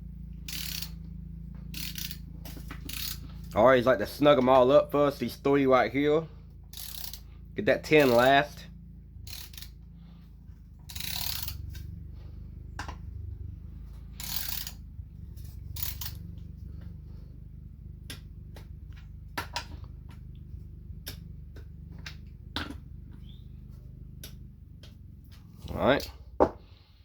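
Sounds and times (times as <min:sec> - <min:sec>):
hand ratchet clicking: 0:00.4 - 0:01.1, 0:01.7 - 0:03.6, 0:06.7 - 0:07.3, 0:08.0 - 0:08.3, 0:09.2 - 0:09.8, 0:10.8 - 0:12.0, 0:14.2 - 0:14.8, 0:15.4 - 0:16.2.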